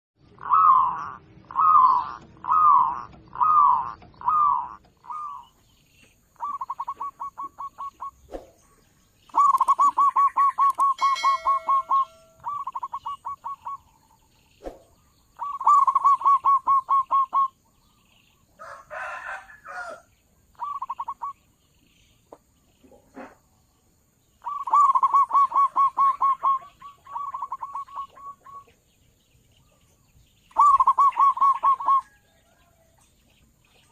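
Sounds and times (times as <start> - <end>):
dove cooing: 0.4 - 5.6, 6.4 - 8.4, 9.3 - 13.9, 14.6 - 17.6, 20.6 - 21.4, 24.4 - 28.7, 30.5 - 32.2.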